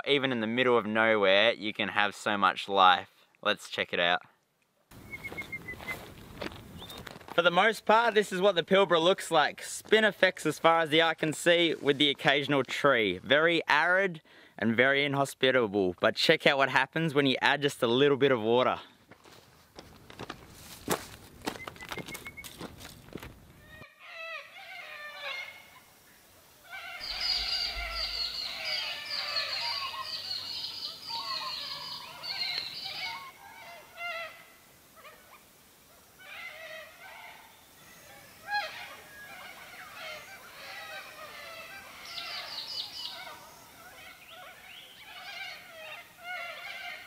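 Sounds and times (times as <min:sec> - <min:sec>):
flock of birds calling: 0:23.7 - 0:47.0.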